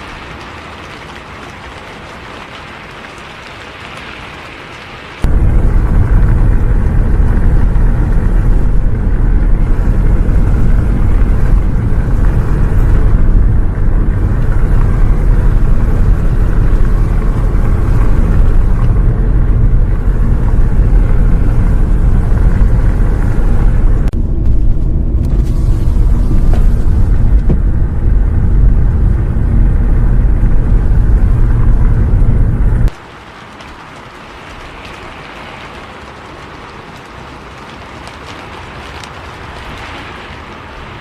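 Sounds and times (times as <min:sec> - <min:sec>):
bus engine and road noise: 0:03.3 - 0:33.2.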